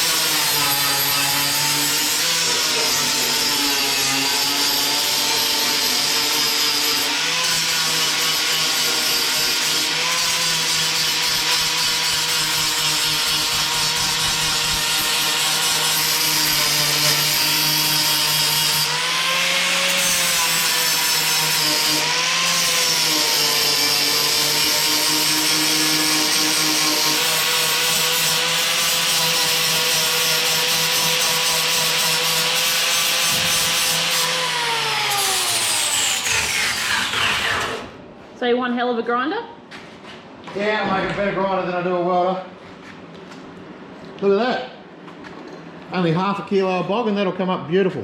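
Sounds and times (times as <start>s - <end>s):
angle grinder on metal: 0.0s - 38.0s.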